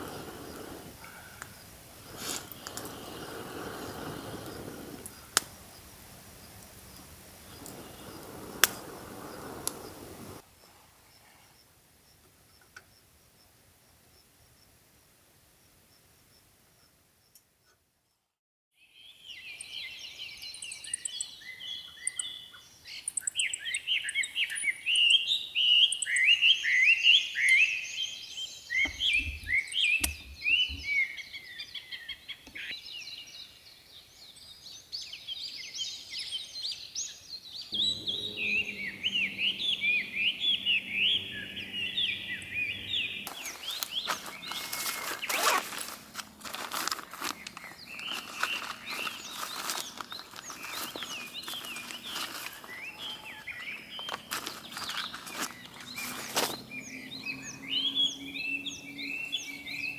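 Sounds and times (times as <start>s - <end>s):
songbirds chirping and singing: 0.0s - 10.4s, 19.0s - 59.9s
low steady hum: 37.8s - 47.3s.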